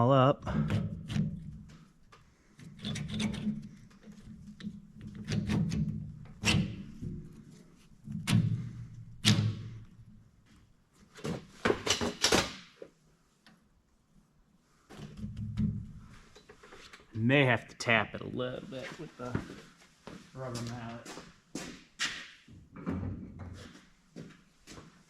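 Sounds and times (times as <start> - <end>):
metal clunks and knocks: 22.7 - 23.6.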